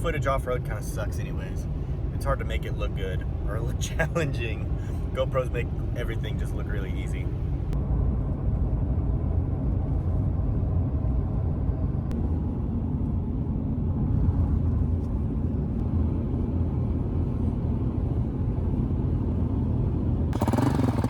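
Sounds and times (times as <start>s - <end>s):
engine and road rumble in car cabin: 0.0s - 21.0s
motorcycle engine running: 20.4s - 21.0s.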